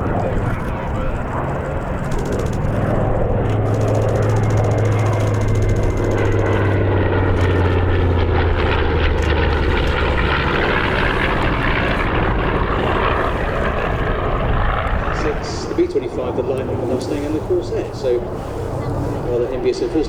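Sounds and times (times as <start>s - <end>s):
propeller planes flying past: 0.0s - 20.0s.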